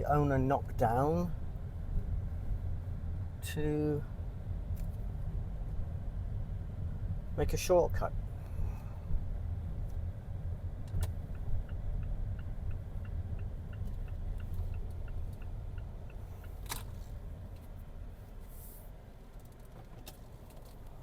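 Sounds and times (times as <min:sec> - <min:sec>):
vehicle engine rumble: 0:00.0 - 0:21.0
turn indicator ticking: 0:09.1 - 0:17.8.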